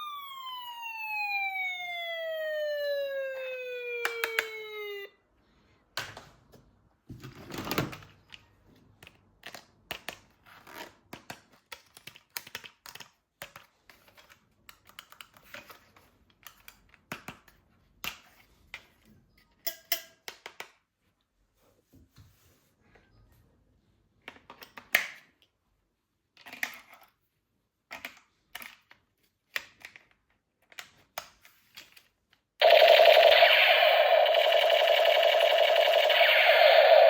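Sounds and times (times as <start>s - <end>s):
electronic toy siren tone: 0.0s - 5.2s, 32.6s - 37.0s.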